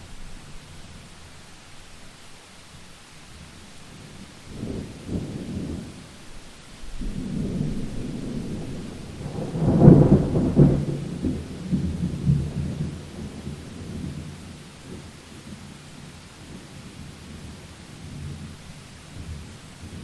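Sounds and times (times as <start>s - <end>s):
steady rain: 0.0s - 20.0s
thunder rumbling and cracking: 6.9s - 15.1s.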